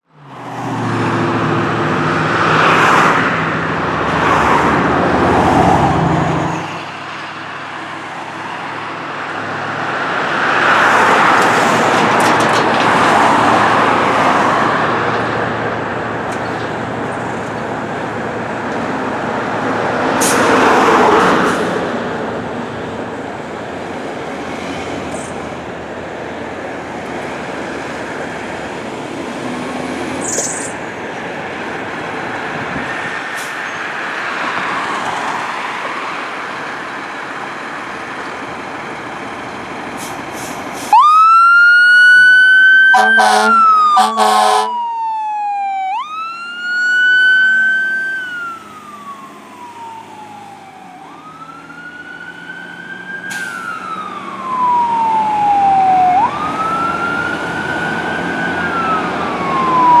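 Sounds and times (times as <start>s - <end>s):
road noise: 0.0s - 60.0s
emergency siren wailing: 0.7s - 16.1s, 40.8s - 60.0s
short horn blasts: 42.9s - 44.7s.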